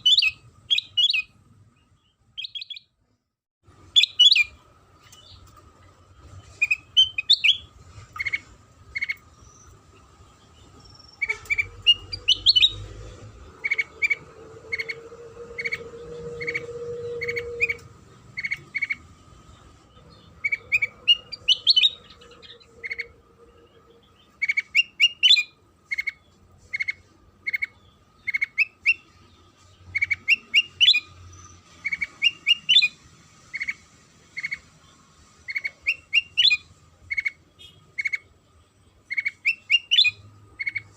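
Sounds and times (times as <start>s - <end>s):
bird singing clear notes: 10.5s - 12.9s.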